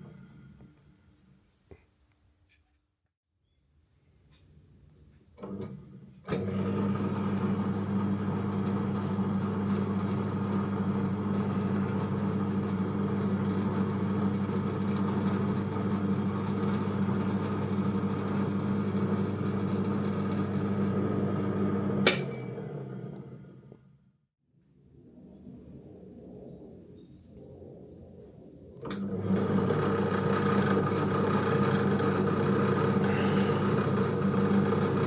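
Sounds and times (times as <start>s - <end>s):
drill press motor hum: 5.4s - 24.0s, 28.8s - 35.0s.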